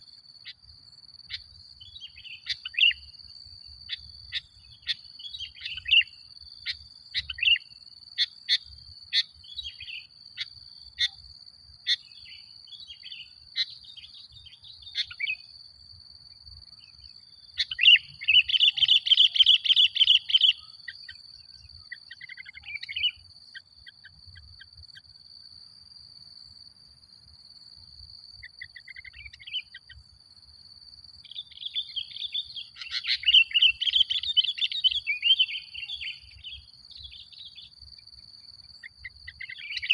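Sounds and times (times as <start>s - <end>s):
rapid chattering birdsong: 11.9s - 15.5s, 16.8s - 24.7s, 31.3s - 37.8s.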